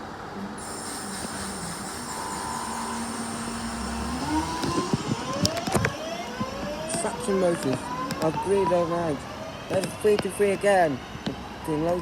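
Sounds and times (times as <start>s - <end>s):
electric train motors whining: 0.6s - 9.8s.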